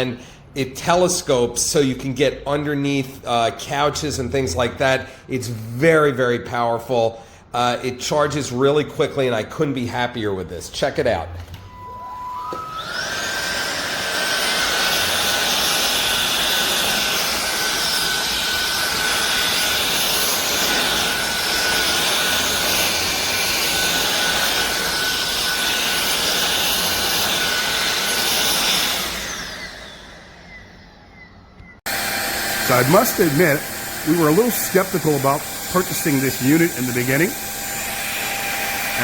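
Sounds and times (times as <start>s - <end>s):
vacuum cleaner motor whine: 11.4s - 39.0s.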